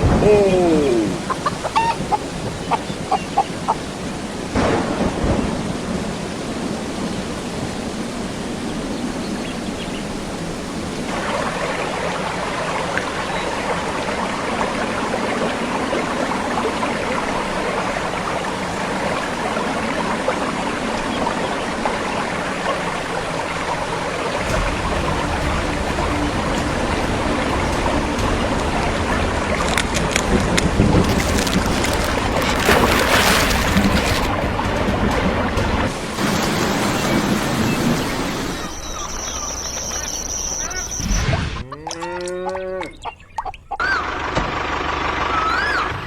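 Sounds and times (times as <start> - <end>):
rain falling: 0.0 - 38.6
sharp thunderclap: 4.6 - 6.2.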